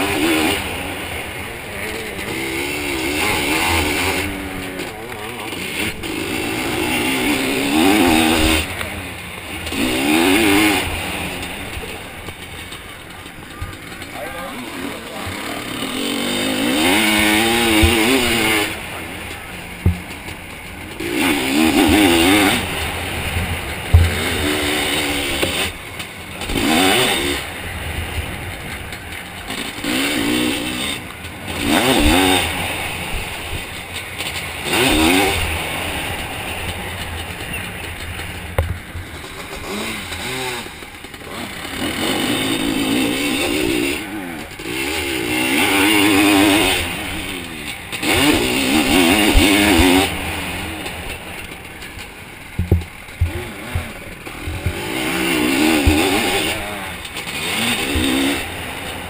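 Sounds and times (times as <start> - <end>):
two-stroke engine revving: 0.0 - 59.0
sharp knocks: 52.5 - 53.9.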